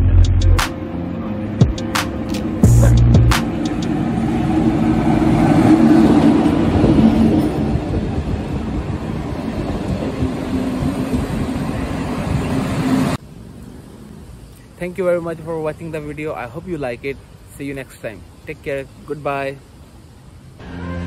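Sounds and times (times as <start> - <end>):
train wheels rumbling on rail: 3.3 - 13.2.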